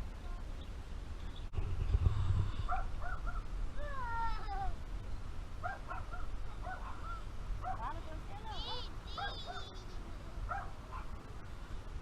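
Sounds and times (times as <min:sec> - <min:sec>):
low rumble: 0:01.3 - 0:05.6
farm animals calling: 0:08.6 - 0:09.8.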